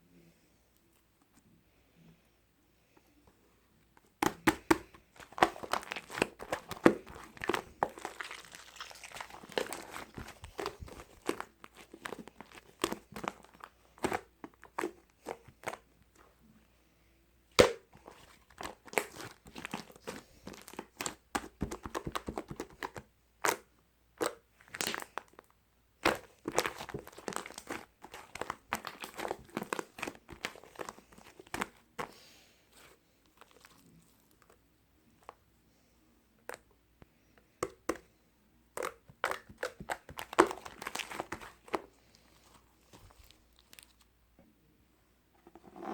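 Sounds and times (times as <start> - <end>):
crinkling handling sounds: 3.1 - 16.7, 17.6 - 38.1, 38.7 - 44.3.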